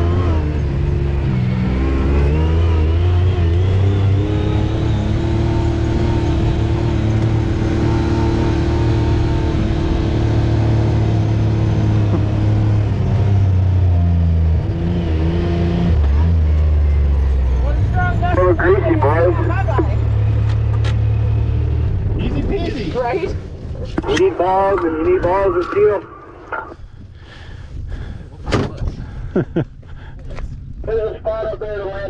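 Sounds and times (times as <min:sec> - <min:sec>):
utility vehicle engine revving: 0:00.0 - 0:22.5.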